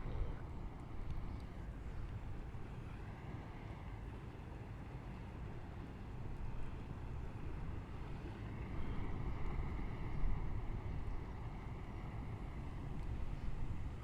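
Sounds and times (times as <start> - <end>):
low outdoor rumble: 0.0 - 4.8.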